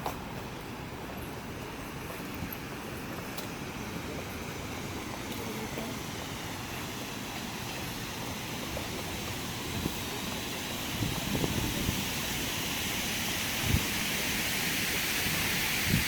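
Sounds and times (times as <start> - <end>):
wind buffeting microphone: 7.8 - 16.0.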